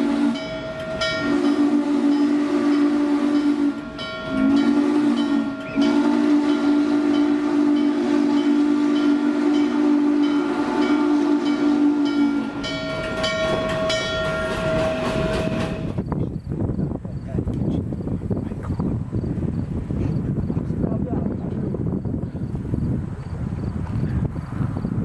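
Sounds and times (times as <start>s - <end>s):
steam locomotive chime whistle: 0.0s - 16.0s
moving train noise: 0.0s - 25.0s.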